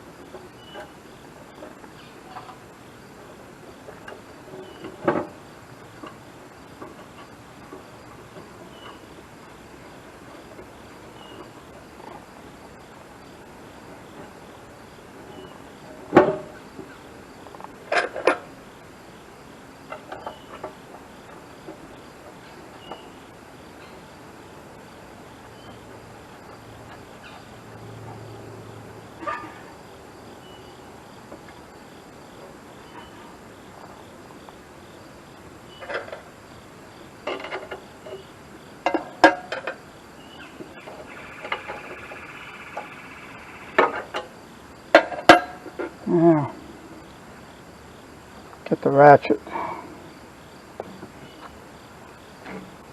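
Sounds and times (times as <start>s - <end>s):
clanks on metal parts: 17.8s - 18.5s, 35.7s - 36.3s, 37.2s - 38.2s, 38.8s - 39.8s, 43.8s - 46.0s.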